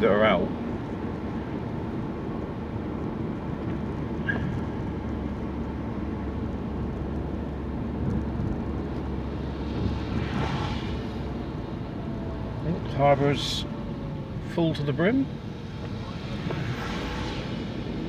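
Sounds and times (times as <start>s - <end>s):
car engine and tyre rumble: 0.0s - 18.0s
rushing noise: 9.1s - 14.2s, 15.4s - 18.0s.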